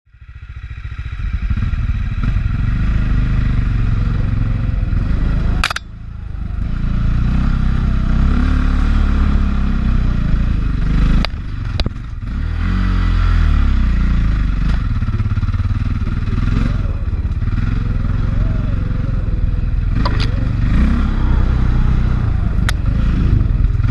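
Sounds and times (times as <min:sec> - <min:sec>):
dirt bike engine revving: 0:00.3 - 0:23.9
sharp clicks: 0:05.6 - 0:05.9, 0:20.0 - 0:20.4.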